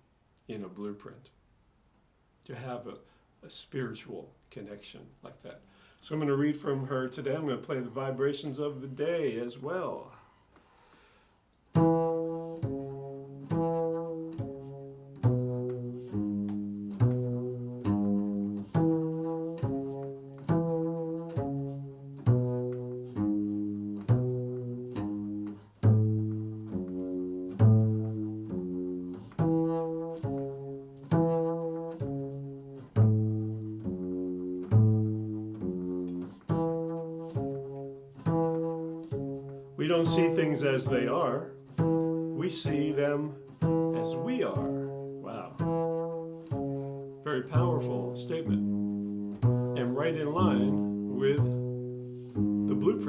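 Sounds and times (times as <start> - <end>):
low plucked instrumental notes: 11.8 - 53.0.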